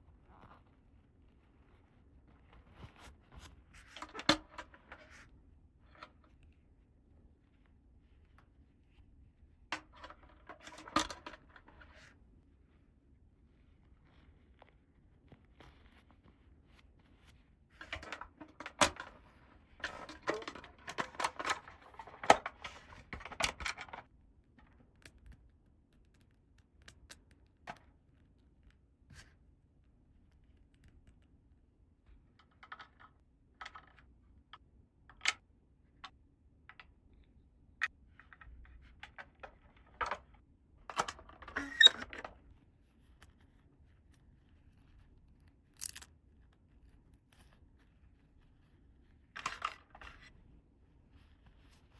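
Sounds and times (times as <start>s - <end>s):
plastic toy pieces clicking: 45.8s - 46.1s.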